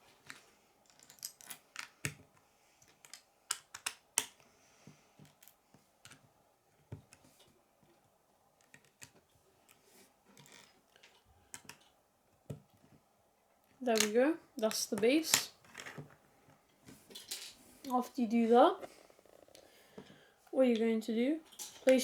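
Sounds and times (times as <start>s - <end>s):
plastic bricks clicking: 0.3s - 4.4s, 10.4s - 11.9s, 13.8s - 16.0s.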